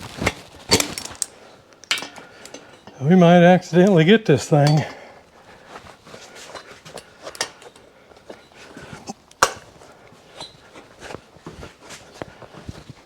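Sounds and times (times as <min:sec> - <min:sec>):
hand tools clinking on metal: 0:00.0 - 0:09.8.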